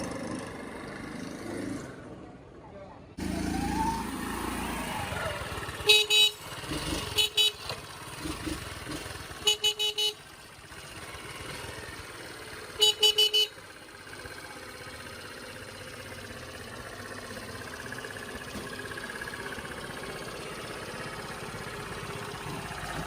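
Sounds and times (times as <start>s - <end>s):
motorbike horn tooting: 5.7s - 7.8s, 9.4s - 10.3s, 12.6s - 13.6s.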